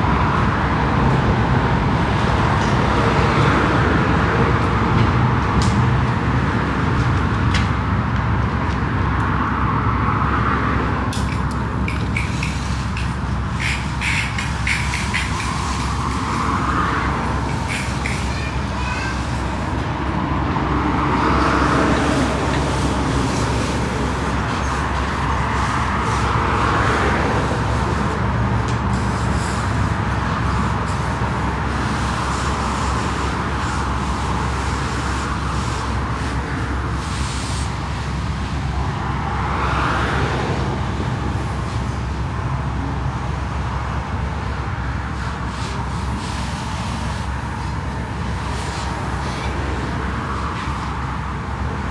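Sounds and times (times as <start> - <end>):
rushing noise: 9.5 - 42.5.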